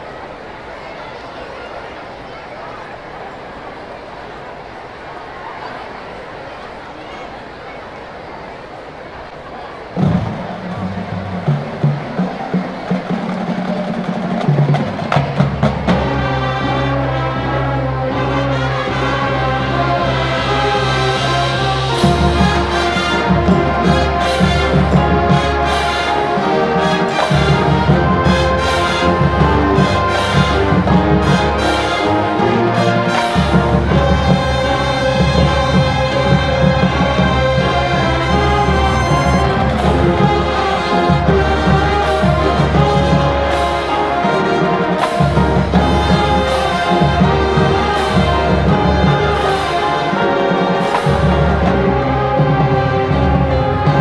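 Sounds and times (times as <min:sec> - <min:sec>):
marching band playing: 0:09.2 - 0:54.0
brass chords: 0:10.0 - 0:54.0
percussion hits: 0:21.6 - 0:54.0.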